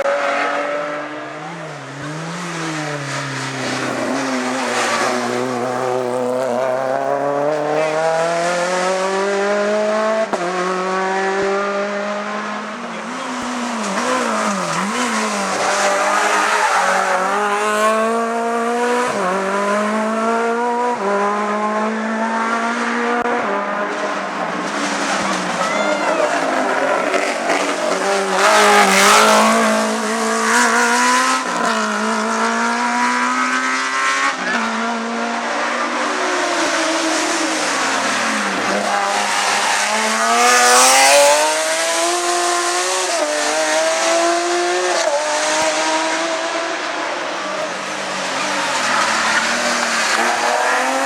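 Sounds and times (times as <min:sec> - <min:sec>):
race car engine revving: 0:00.0 - 0:51.0.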